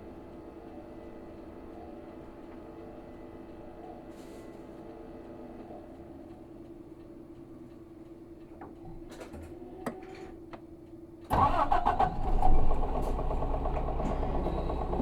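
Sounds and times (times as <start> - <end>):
bus diesel engine starting: 11.3 - 15.0.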